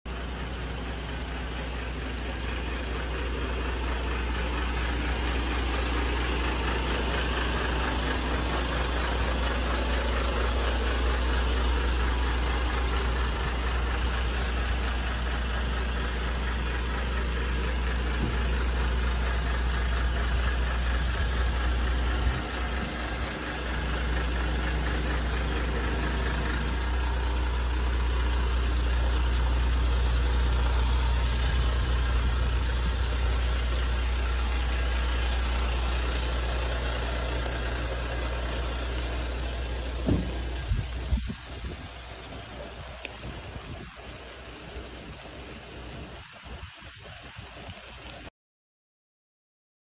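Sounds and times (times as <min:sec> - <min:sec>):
diesel truck engine running: 0:00.1 - 0:48.3
brief knock: 0:40.0 - 0:40.3.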